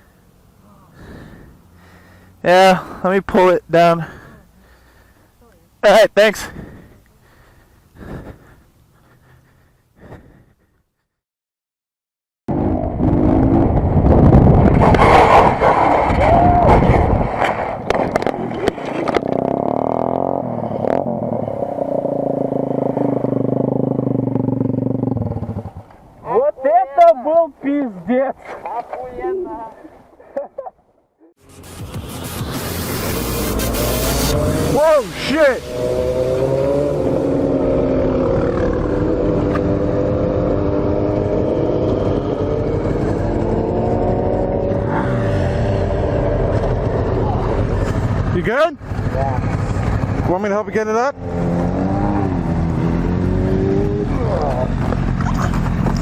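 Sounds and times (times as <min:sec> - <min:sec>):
rush of wind or road noise: 0:12.5 - 0:27.4, 0:31.4 - 0:56.0
motorcycle engine running: 0:19.2 - 0:26.0, 0:31.4 - 0:56.0.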